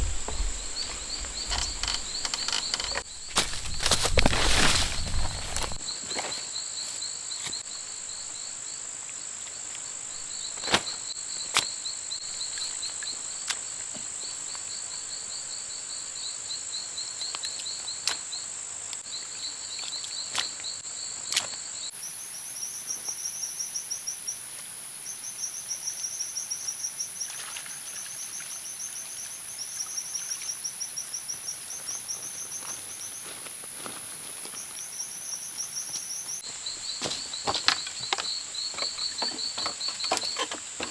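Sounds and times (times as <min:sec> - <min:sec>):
insects high-pitched drone: 0:00.0 - 0:05.8
insects chirping trills: 0:00.0 - 0:40.9.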